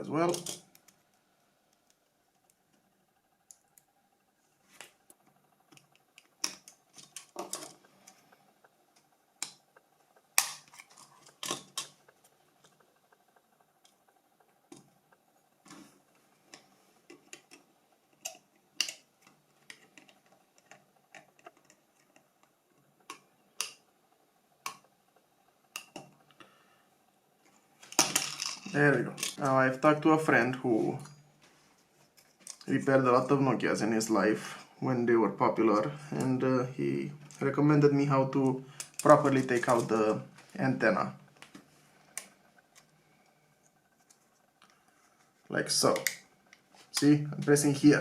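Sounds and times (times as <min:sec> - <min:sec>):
phone parts clicking and tapping: 0:16.5 - 0:23.8.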